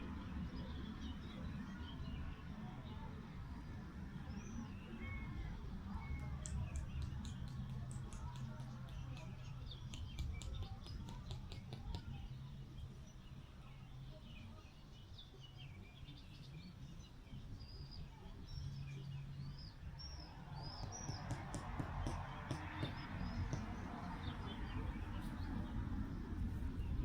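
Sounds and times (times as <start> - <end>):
small birds chirping: 0.2 - 27.0
low wind rumble: 19.4 - 27.0.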